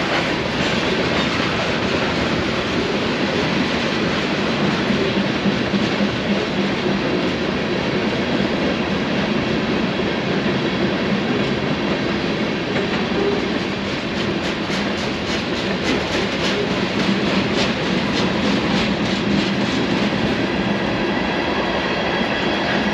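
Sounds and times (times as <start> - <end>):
train wheels rolling on rails: 0.0 - 22.9.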